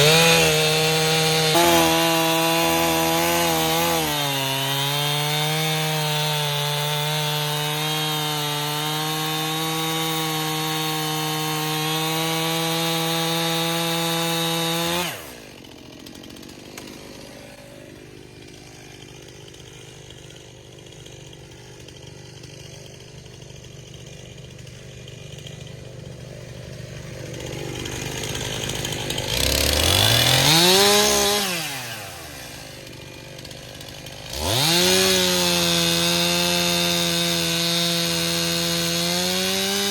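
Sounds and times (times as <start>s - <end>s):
chainsaw at full throttle cutting: 0.0s - 39.9s
chainsaw idling: 0.0s - 39.9s
chainsaw revving: 0.0s - 39.9s.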